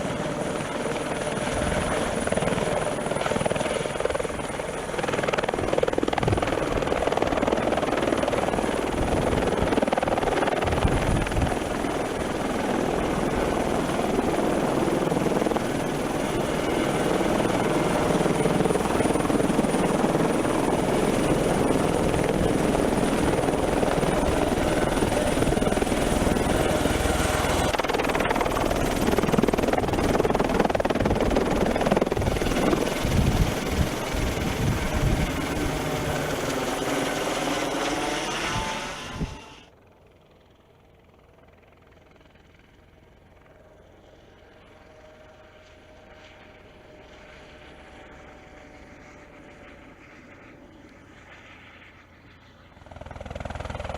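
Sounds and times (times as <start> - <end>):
helicopter turbine and rotor noise: 0.0 - 53.9
thin high whine: 37.0 - 39.7.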